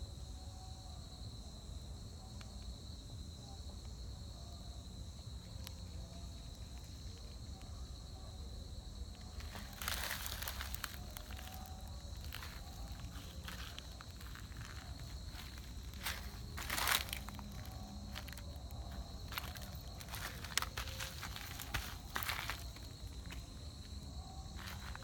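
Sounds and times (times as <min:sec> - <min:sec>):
high-pitched insect drone: 0:04.3 - 0:25.0
crunching and rustling: 0:09.3 - 0:23.9, 0:24.5 - 0:25.0.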